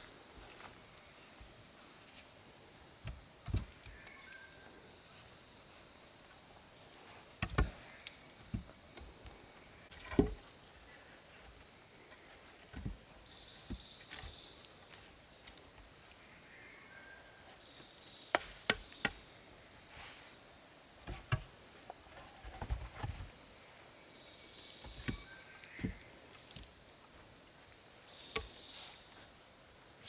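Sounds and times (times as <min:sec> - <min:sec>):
insect chirping: 0:00.0 - 0:30.0
knocks and thuds of wood: 0:03.0 - 0:03.9, 0:07.4 - 0:09.2, 0:09.9 - 0:10.5, 0:12.7 - 0:14.4, 0:18.3 - 0:19.2, 0:21.0 - 0:21.5, 0:22.2 - 0:23.3, 0:24.8 - 0:26.7
sharp wood cracks: 0:18.3 - 0:19.2.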